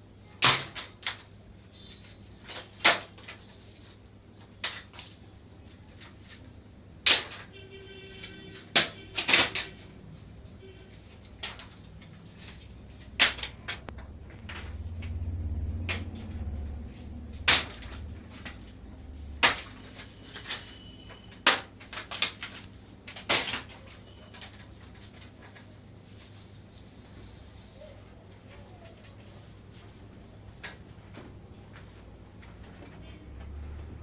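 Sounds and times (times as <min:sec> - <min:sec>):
sharp knocks and clatters: 0:17.3 - 0:18.7.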